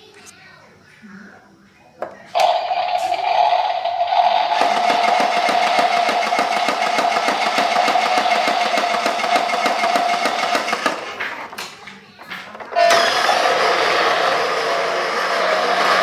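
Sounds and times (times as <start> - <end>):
gears clicking rapidly: 4.1 - 11.6
toy motor whining: 4.2 - 11.6, 12.8 - 16.0.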